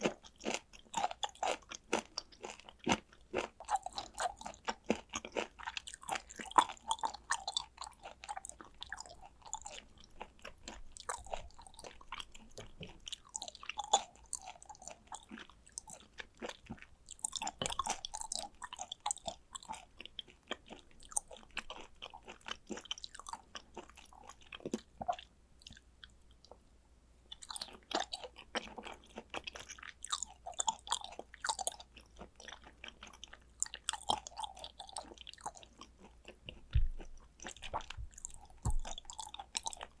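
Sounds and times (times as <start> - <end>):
wet chewing and mouth sounds: 0.0 - 26.6, 27.3 - 40.0.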